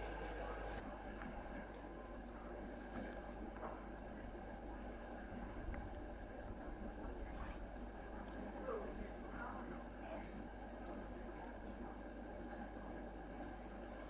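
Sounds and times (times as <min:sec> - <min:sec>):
songbird calling: 0:00.0 - 0:03.0, 0:04.0 - 0:04.9, 0:06.6 - 0:07.0, 0:12.7 - 0:13.1.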